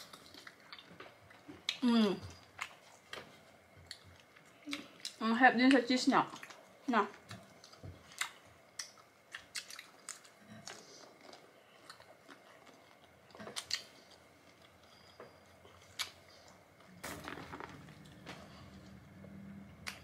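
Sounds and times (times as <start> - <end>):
chewing and crunching prawns: 6.3 - 15.1.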